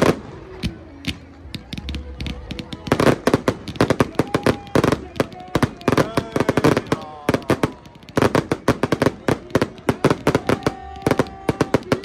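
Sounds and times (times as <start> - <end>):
fireworks cracking: 0.0 - 12.0.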